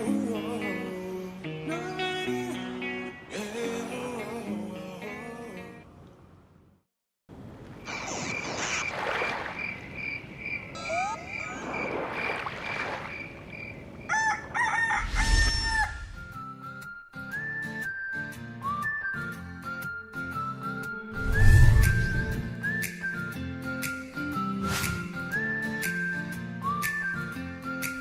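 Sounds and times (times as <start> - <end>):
guitar-led background music: 0.0 - 5.7, 16.3 - 28.0
rooster crowing: 14.0 - 16.2.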